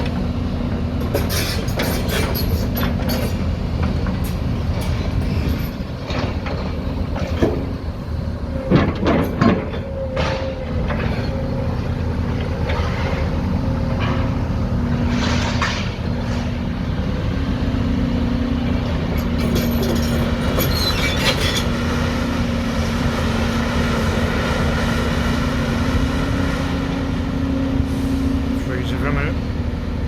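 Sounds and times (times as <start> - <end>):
heavy engine humming: 0.0 - 30.0
rattling and clattering: 1.0 - 14.4.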